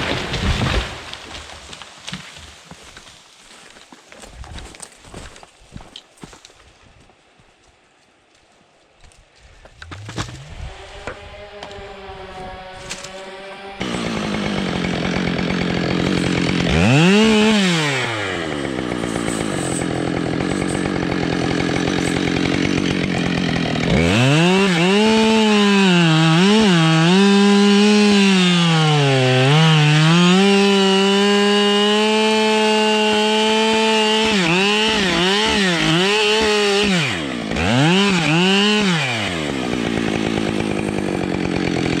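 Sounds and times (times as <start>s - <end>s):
chainsaw revving: 9.8s - 42.0s.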